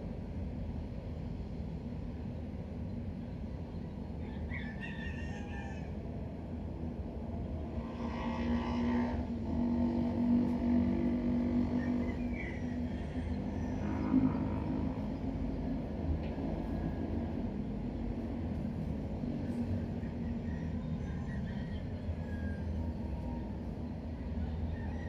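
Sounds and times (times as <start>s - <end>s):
traffic rumble: 5.8s - 25.0s
engine hum: 6.5s - 24.9s.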